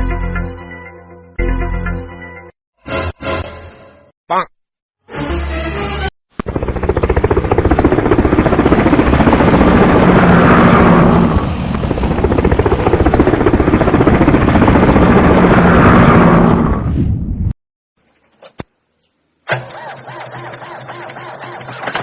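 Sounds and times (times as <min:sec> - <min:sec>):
pulsing helicopter-like vehicle effect: 0:06.4 - 0:16.8, 0:20.0 - 0:22.0.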